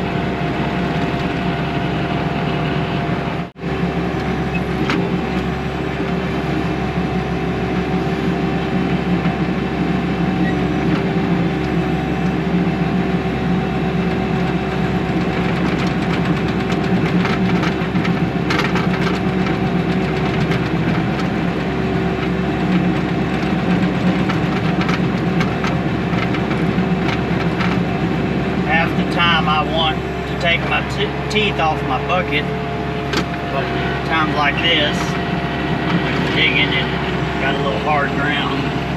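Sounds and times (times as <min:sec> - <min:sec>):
diesel engine running: 0:00.0 - 0:38.9
clatter and scraping: 0:15.1 - 0:28.1, 0:33.0 - 0:38.9.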